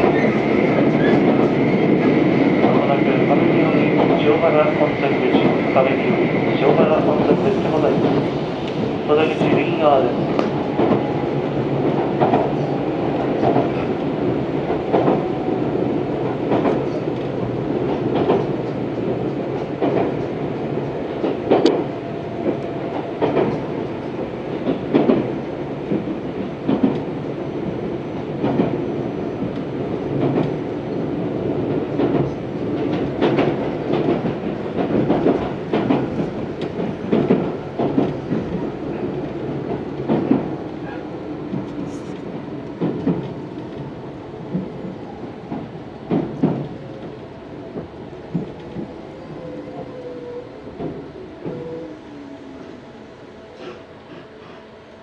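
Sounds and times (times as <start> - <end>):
train rumble from inside: 0.0 - 55.0.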